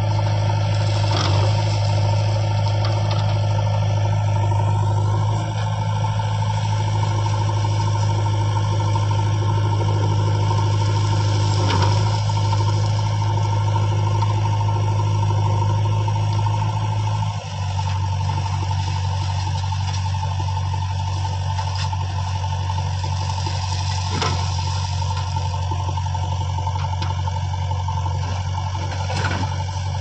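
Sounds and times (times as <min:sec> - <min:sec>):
heavy vehicle engine running: 0:00.0 - 0:30.0.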